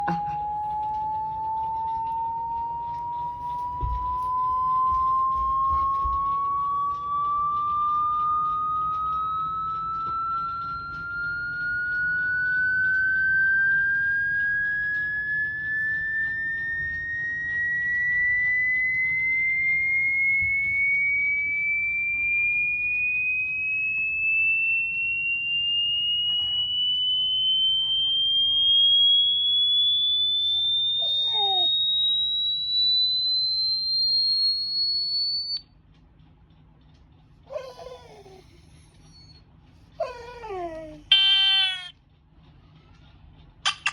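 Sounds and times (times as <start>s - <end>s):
electronic tone rising in pitch: 0.0s - 35.6s, 40.0s - 41.9s
dog whining: 24.1s - 35.6s, 37.4s - 42.0s.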